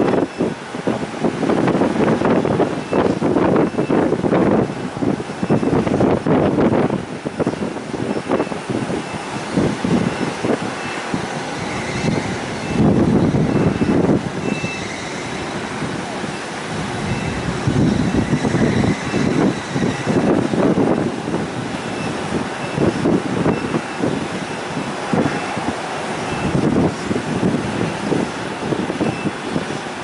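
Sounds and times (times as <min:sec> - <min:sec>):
wind buffeting microphone: 0:00.0 - 0:30.0
faint high beep: 0:10.1 - 0:12.9, 0:13.5 - 0:15.6, 0:17.1 - 0:17.4, 0:26.3 - 0:26.6.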